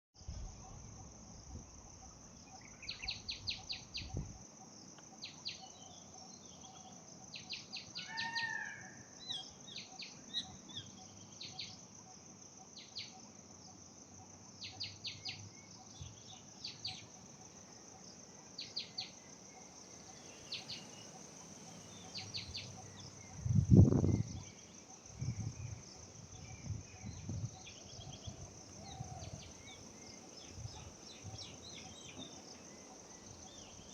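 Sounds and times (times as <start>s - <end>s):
insect drone: 0.2s - 33.9s
birds chipping: 2.1s - 33.9s.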